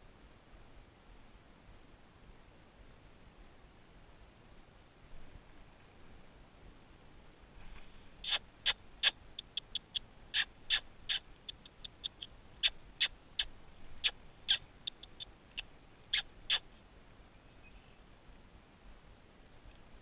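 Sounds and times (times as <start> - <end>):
songbird calling: 8.2 - 18.0.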